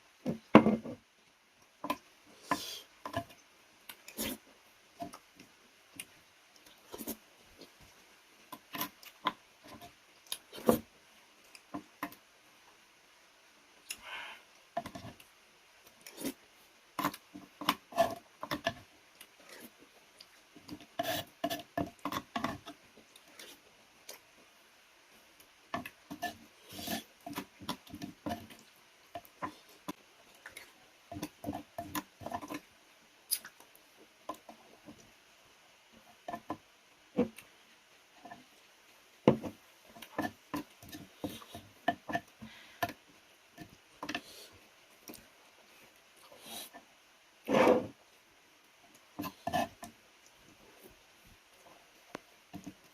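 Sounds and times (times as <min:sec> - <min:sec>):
person chewing food: 0:17.0 - 0:24.3, 0:25.4 - 0:32.7, 0:33.3 - 0:35.1, 0:39.3 - 0:43.0.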